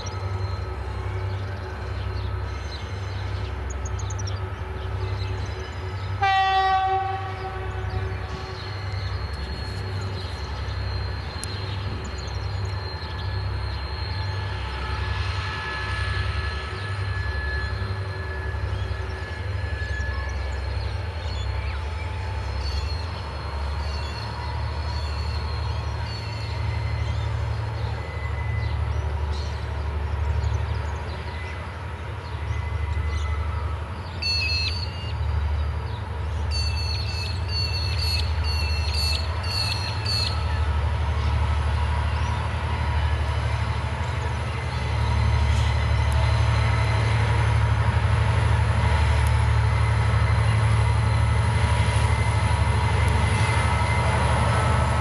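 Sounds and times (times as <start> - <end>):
locomotives and wagons rumbling: 0.0 - 55.0
train horn blast: 6.2 - 8.8.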